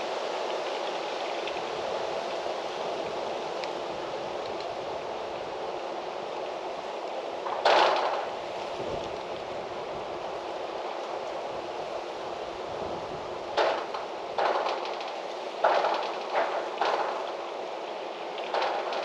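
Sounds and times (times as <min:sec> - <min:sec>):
steady wind blowing: 0:00.0 - 0:19.0
loud rustling bursts: 0:07.4 - 0:09.0, 0:13.5 - 0:19.0.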